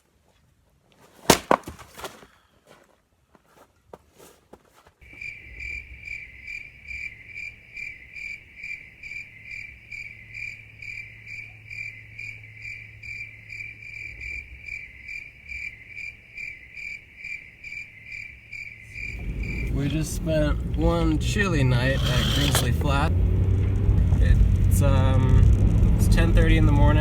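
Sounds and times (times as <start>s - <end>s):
cricket chirping: 5.0s - 22.8s.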